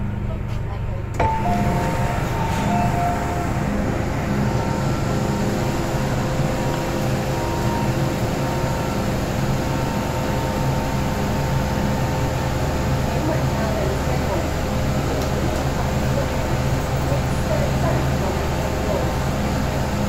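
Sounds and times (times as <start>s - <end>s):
train hum and rumble: 0.0s - 20.0s
faint steady tones: 1.2s - 13.1s.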